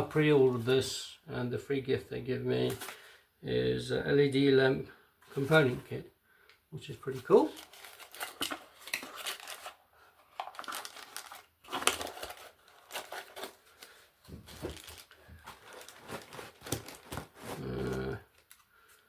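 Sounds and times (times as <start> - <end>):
plastic packaging crinkling: 7.4 - 18.9
plastic tearing: 7.5 - 18.7.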